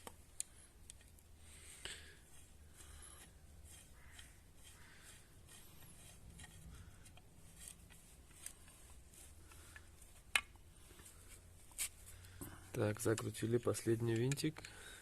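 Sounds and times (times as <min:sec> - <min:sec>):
screwdriver scraping and ticking: 0:00.0 - 0:01.2, 0:02.3 - 0:11.8, 0:14.0 - 0:14.8.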